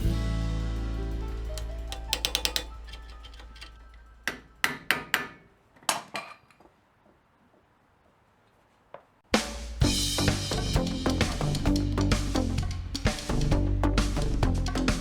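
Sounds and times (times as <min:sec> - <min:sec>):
music: 0:00.0 - 0:04.3, 0:09.4 - 0:15.0.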